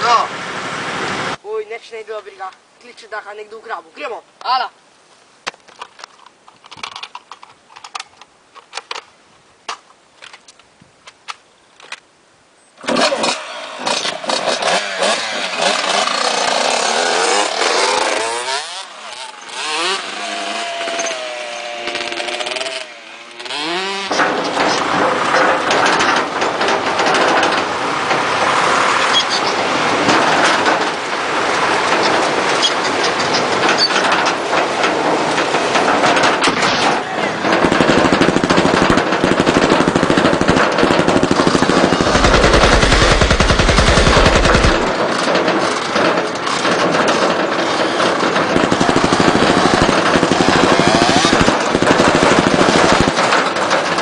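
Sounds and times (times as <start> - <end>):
tractor engine starting and revving: 12.8 - 54.0.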